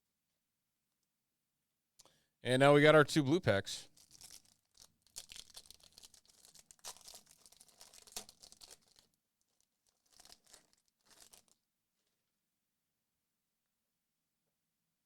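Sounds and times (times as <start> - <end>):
foil wrapper tearing and crinkling: 3.9 - 11.6.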